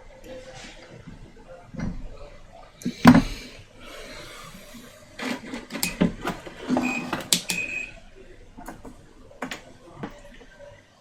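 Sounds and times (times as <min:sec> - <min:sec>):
tools clicking and knocking: 0:05.2 - 0:07.8.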